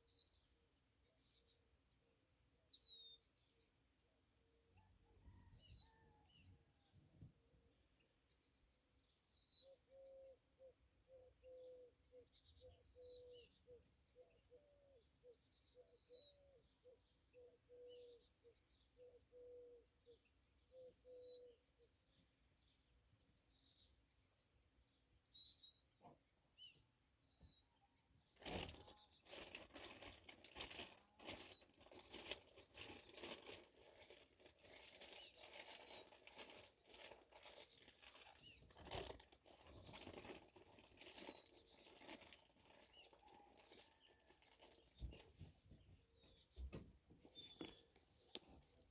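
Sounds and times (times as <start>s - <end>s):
small birds chirping: 8.0s - 48.9s
rustling and clattering handling noise: 28.4s - 48.9s.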